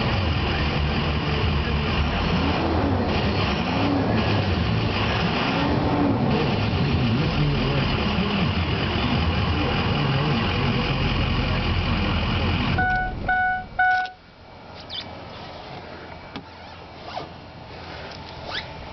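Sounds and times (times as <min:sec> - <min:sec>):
diesel engine idling roughly: 0:00.0 - 0:05.4, 0:06.2 - 0:13.4
short chime beeps: 0:12.8 - 0:14.2.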